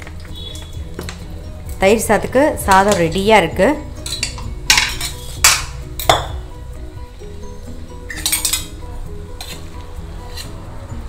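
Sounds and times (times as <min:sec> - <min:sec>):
soft background music: 0:00.0 - 0:11.0
steel cookware clanking: 0:04.0 - 0:06.3, 0:08.1 - 0:08.8.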